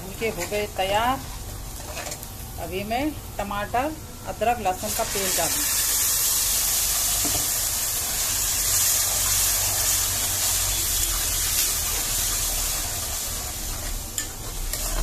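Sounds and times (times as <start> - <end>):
paste sizzling in hot oil: 4.7 - 15.0.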